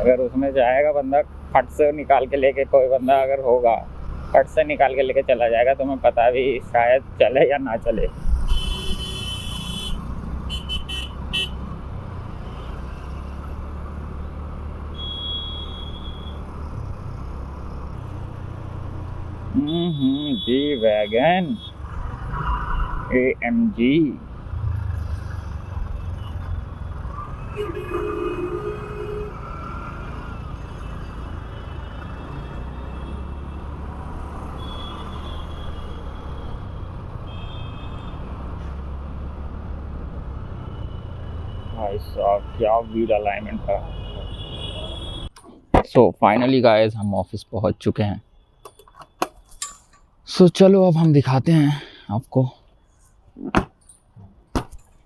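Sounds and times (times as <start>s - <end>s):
road noise: 0.0s - 55.0s
vehicle horn beeps: 15.0s - 16.4s, 19.6s - 21.7s, 27.5s - 29.4s.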